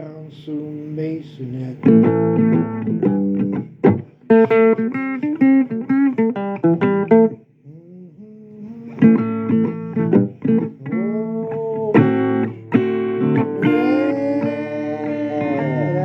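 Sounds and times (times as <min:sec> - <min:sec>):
blues guitar picking: 0:01.5 - 0:16.0
person singing: 0:07.6 - 0:16.0.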